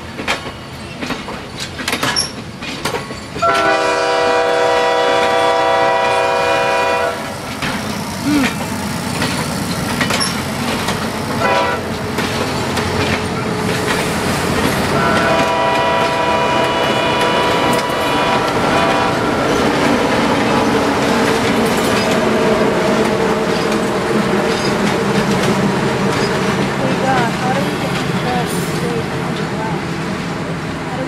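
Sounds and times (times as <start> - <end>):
diesel locomotive engine: 0.0 - 31.0
rumble of train cars: 0.0 - 31.0
wheels clacking over rail joints: 0.0 - 31.0
train horn: 3.4 - 7.3, 11.4 - 11.9, 15.0 - 19.3.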